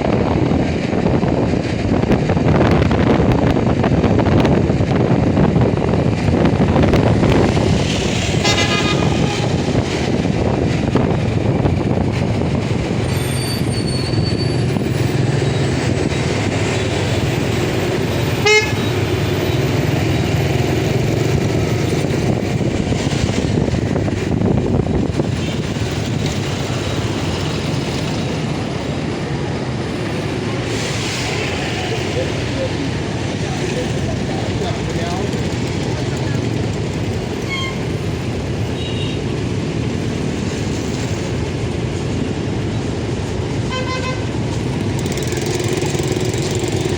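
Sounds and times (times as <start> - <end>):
wind and road noise: 0.0 - 46.9
horn toot: 8.3 - 9.8, 18.4 - 19.0, 43.7 - 44.3.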